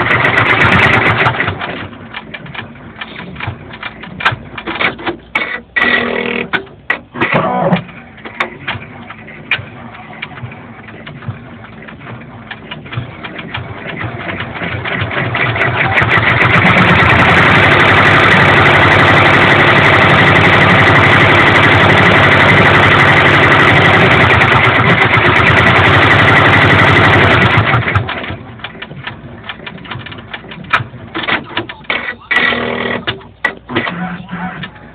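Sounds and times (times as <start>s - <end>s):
embroidery machine ticking and whirring: 0.0s - 34.9s.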